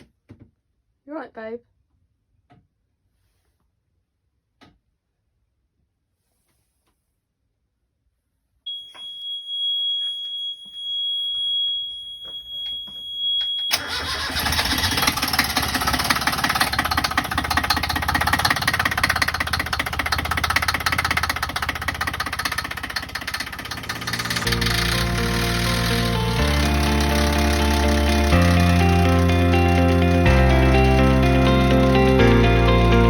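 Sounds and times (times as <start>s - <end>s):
boat engine rattling: 13.8s - 33.0s
high-pitched tone: 23.8s - 33.0s.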